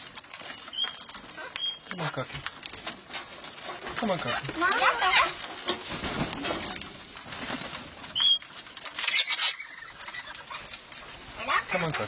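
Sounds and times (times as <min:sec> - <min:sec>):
wings fluttering and scuffling: 0:00.0 - 0:12.0
parrots calling: 0:00.5 - 0:02.2, 0:03.1 - 0:05.4, 0:08.1 - 0:12.0.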